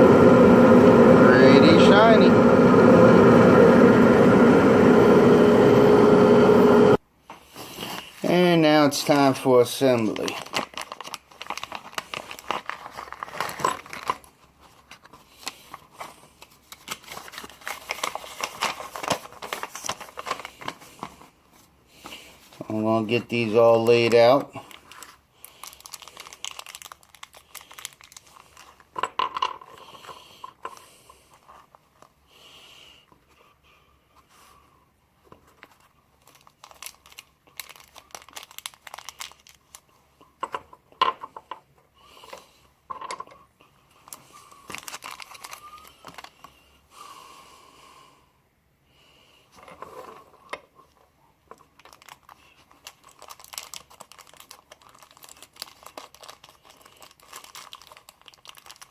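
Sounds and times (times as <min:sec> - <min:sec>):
plastic packaging crinkling: 0:09.0 - 0:21.3, 0:22.5 - 0:29.0, 0:35.4 - 0:40.1, 0:44.0 - 0:46.6, 0:51.5 - 0:58.9
small clicks of parts set down: 0:42.9 - 0:43.4.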